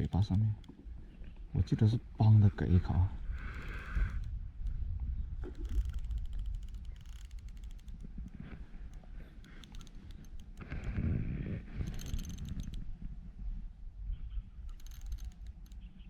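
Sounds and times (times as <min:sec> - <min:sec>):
fishing reel clicking: 0:03.2 - 0:04.8, 0:05.4 - 0:13.0, 0:14.6 - 0:16.0
handling rustle: 0:05.4 - 0:13.1, 0:14.7 - 0:15.9.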